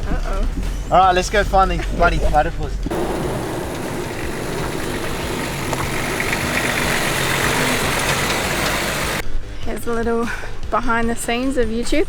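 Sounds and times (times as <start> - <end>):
tyres on dirt track: 0.0 - 9.2
vehicle engine driving: 2.7 - 9.2.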